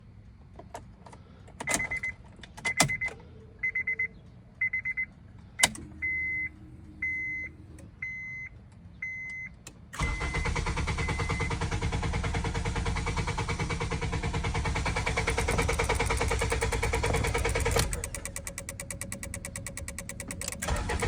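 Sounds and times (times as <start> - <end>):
dashboard warning chimes: 1.6 - 11.6, 15.3 - 21.0
starter cranking engine: 10.0 - 21.0
car key clicks: 15.4 - 20.7.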